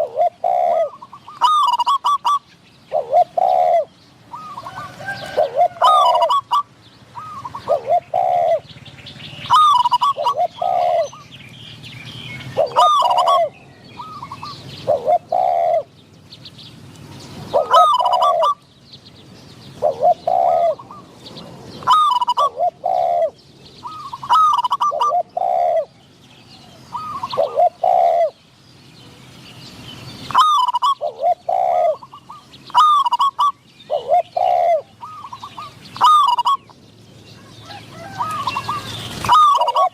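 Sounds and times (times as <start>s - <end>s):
doves cooing: 0.0s - 11.4s, 12.4s - 16.2s, 17.4s - 18.6s, 19.7s - 28.4s, 30.3s - 39.9s.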